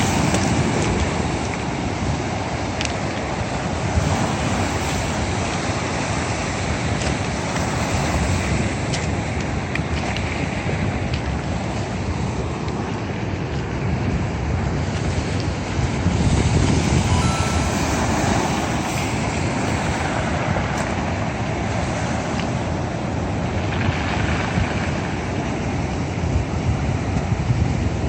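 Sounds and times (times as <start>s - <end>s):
sea surf: 0.0s - 9.4s, 14.8s - 26.3s
wind buffeting microphone: 0.0s - 28.0s.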